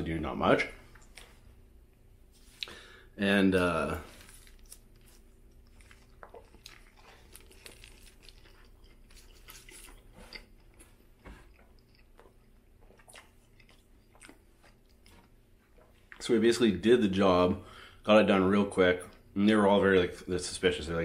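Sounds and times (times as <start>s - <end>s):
person biting and chewing: 4.1s - 16.2s.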